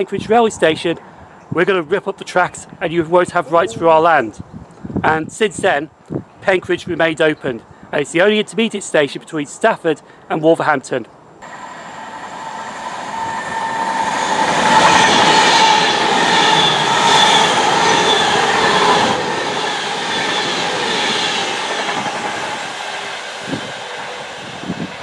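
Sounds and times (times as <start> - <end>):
steady whine: 11.4 - 24.9
electric train passing at speed: 11.4 - 25.0.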